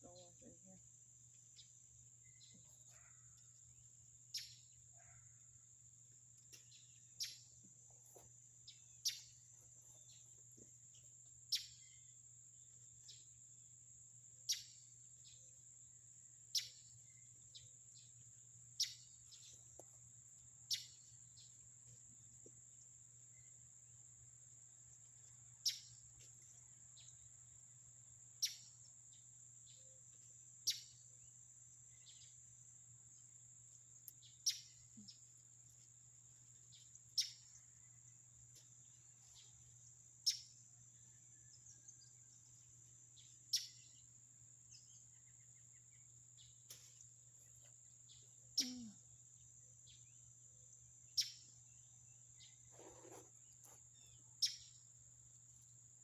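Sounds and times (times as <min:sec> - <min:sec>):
insect trill: 0:00.0 - 0:56.0.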